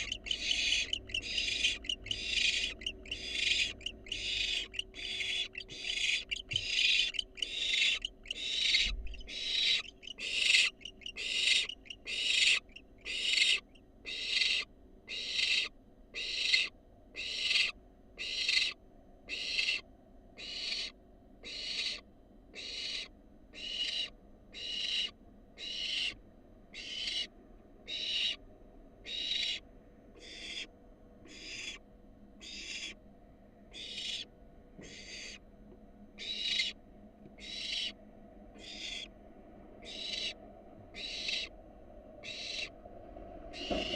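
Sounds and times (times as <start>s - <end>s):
owl chick hissing screeches: 0.0s - 19.8s, 20.4s - 22.0s, 22.6s - 26.2s, 26.8s - 27.3s, 27.9s - 28.4s, 29.1s - 29.6s, 30.2s - 30.7s, 31.3s - 31.8s, 32.4s - 33.0s, 33.7s - 35.4s, 36.2s - 36.8s, 37.4s - 38.0s, 38.6s - 39.1s, 39.8s - 41.5s, 42.2s - 42.7s.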